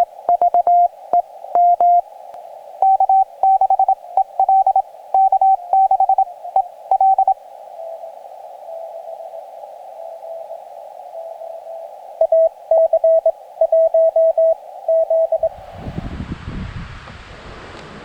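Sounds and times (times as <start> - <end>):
morse code sidetone beeps: 0.0 - 2.0, 2.8 - 7.4, 12.2 - 15.5
faint lower morse signal: 0.0 - 15.6
receiver hiss: 0.0 - 16.0.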